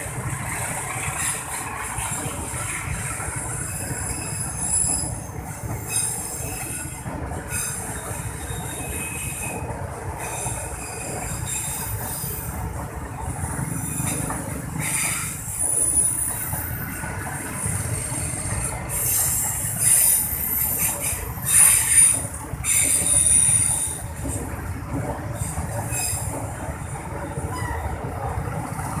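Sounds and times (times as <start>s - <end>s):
train wheels rumbling on rail: 0.0s - 29.0s
high-pitched wheel squeal: 3.5s - 12.5s, 13.8s - 24.1s, 25.8s - 26.4s, 27.4s - 28.0s.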